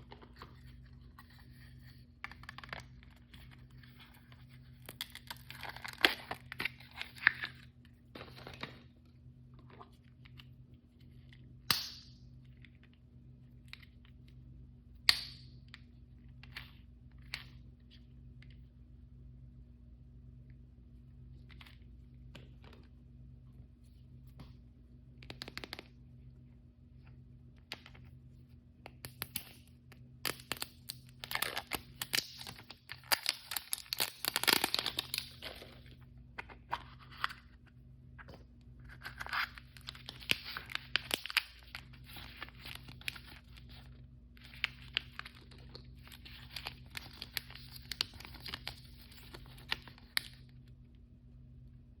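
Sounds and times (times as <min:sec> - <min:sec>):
plastic wrapper tearing and crinkling: 0:05.0 - 0:07.5, 0:30.2 - 0:35.9, 0:38.9 - 0:50.5.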